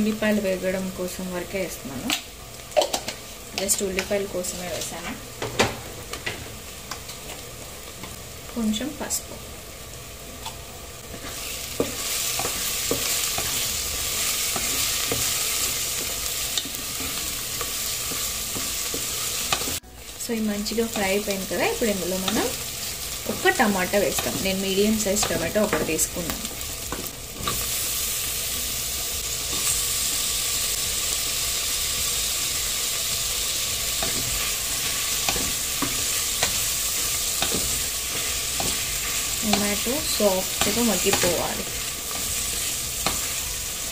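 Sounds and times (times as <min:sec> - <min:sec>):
onions sizzling in oil: 0:00.0 - 0:43.9.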